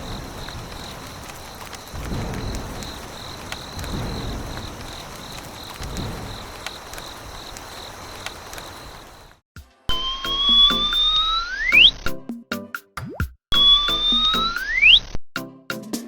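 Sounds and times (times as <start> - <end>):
faint ticks: 0.0 - 9.4
insects chirping: 0.0 - 9.4, 10.0 - 12.0, 13.6 - 15.0.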